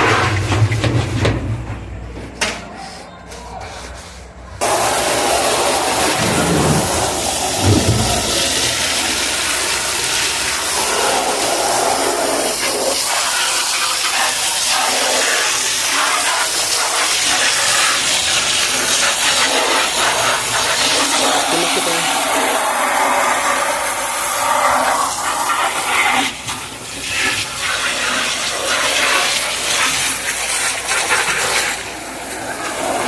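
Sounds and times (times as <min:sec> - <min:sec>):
water running and splashing: 0:04.6 - 0:33.0.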